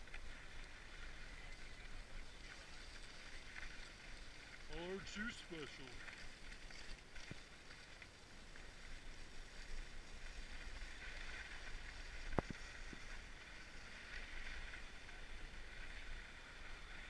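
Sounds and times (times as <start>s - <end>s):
skis hissing over snow: 8.6s - 17.0s.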